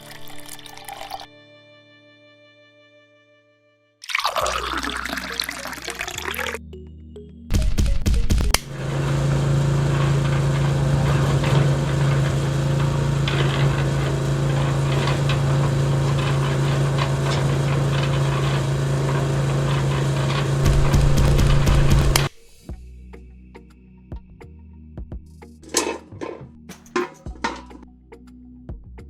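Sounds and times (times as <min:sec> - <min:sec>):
loud clattering: 0:08.5 - 0:22.3, 0:25.6 - 0:27.8
small motor humming: 0:08.6 - 0:22.3.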